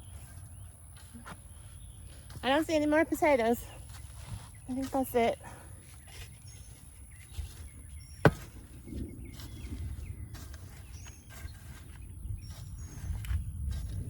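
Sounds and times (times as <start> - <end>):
shovel knocks: 8.2 - 8.6
shovel digging through soil: 10.3 - 14.0.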